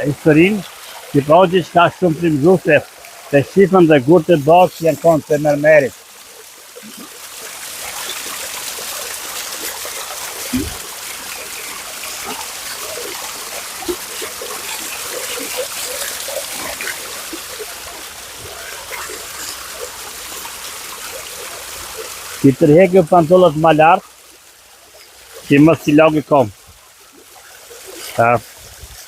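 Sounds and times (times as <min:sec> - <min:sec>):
water splashing and trickling: 0:00.0 - 0:29.0
low thumps: 0:10.5 - 0:10.9.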